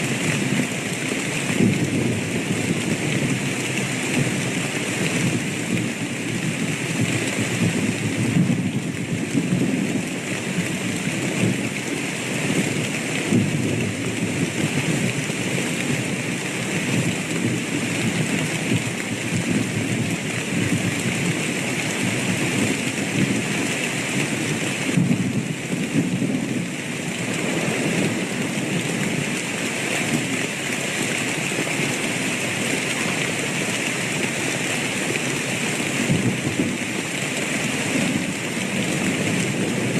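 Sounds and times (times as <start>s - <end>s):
steady rain falling: 0.0s - 39.9s
low thunder rumbling: 1.5s - 16.2s, 24.2s - 29.4s.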